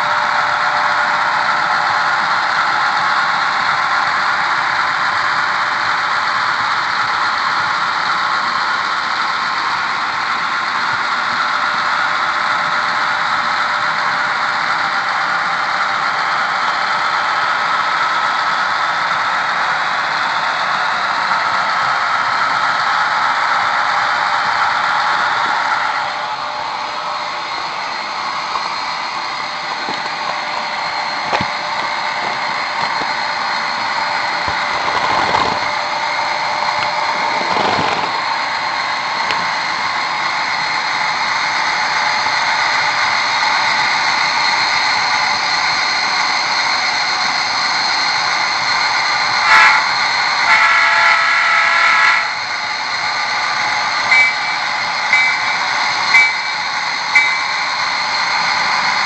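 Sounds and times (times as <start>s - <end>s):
model locomotive diesel engine: 0.0s - 59.0s
train horn: 49.4s - 52.4s.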